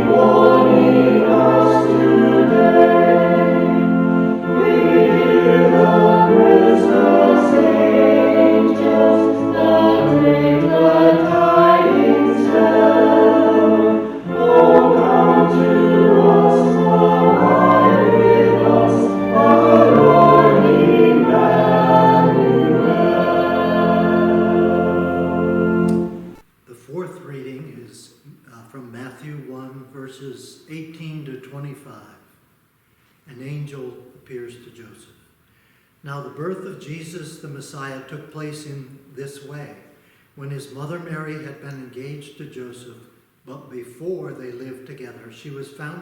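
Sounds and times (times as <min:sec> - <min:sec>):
choir singing a hymn: 0:00.0 - 0:26.4.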